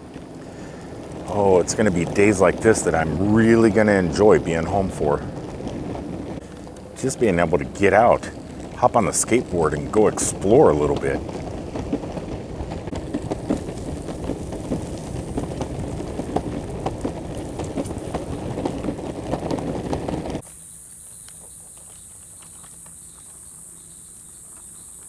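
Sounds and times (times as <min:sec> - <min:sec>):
skateboard wheels rolling on pavement: 0:00.0 - 0:25.0
high-pitched insect chorus: 0:20.4 - 0:25.0.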